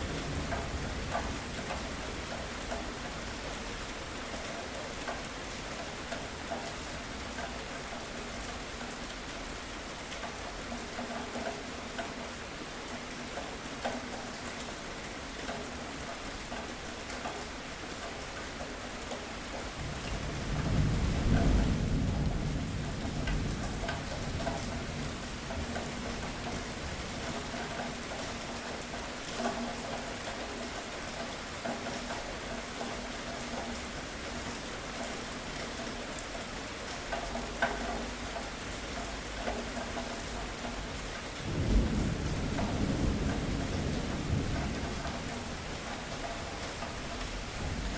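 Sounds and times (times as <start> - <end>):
steady rain falling: 0.0 - 47.9
low roll of thunder: 19.8 - 27.5, 41.4 - 46.2.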